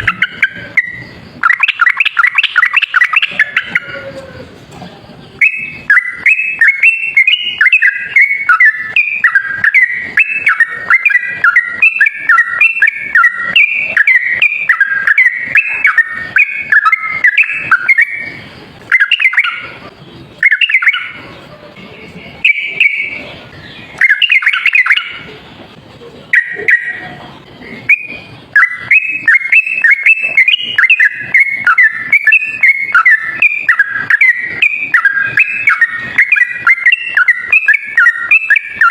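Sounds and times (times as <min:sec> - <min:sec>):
bulbul singing chattering runs: 0:00.0 - 0:38.9.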